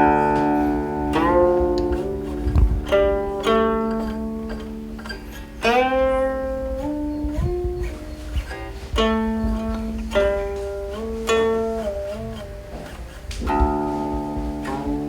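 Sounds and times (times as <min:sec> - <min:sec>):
plucked zither notes sliding: 0:00.0 - 0:15.0.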